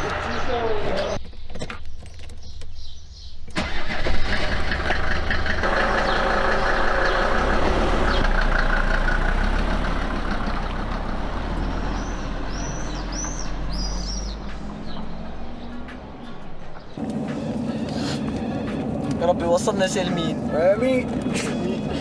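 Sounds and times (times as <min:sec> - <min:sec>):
bird chirps: 0:00.2 - 0:03.6, 0:06.0 - 0:07.5, 0:11.6 - 0:18.8
car pulling away: 0:03.5 - 0:22.0
car engine running: 0:03.6 - 0:22.0.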